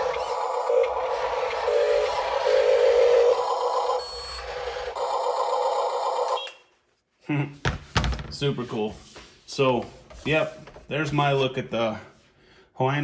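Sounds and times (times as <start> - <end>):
small electric motors whining: 0.0 - 5.8.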